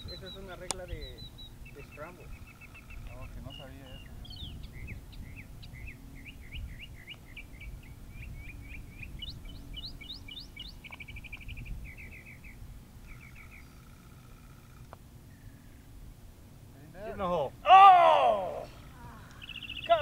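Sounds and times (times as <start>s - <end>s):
low steady rumble: 0.0s - 20.0s
songbird singing: 0.0s - 20.0s.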